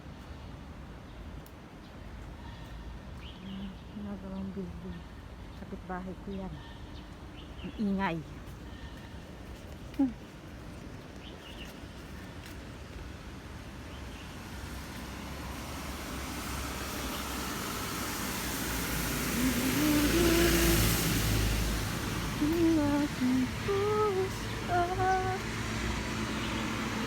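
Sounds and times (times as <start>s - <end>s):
vehicle passing: 14.6s - 27.0s
person humming: 19.2s - 21.6s, 22.2s - 25.6s.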